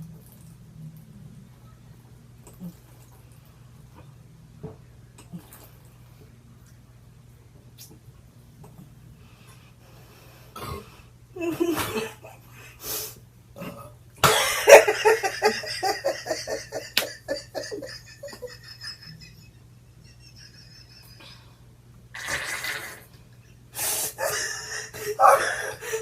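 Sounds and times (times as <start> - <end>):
person coughing: 14.2 - 14.9
person laughing: 14.3 - 21.5, 24.2 - 26.0.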